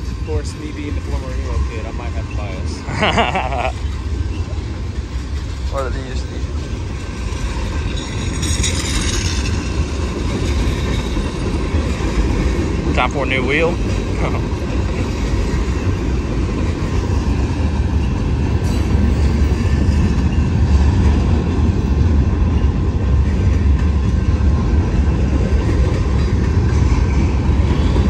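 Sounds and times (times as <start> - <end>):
freight train wheels on rails: 0.0 - 28.0.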